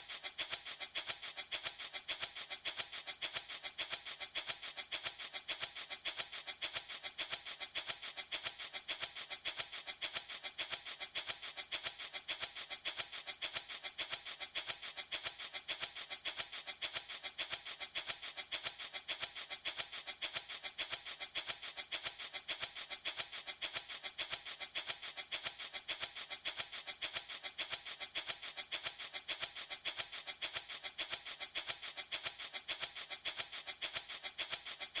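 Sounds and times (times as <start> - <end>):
wooden baby rattle shaking: 0.0 - 35.0.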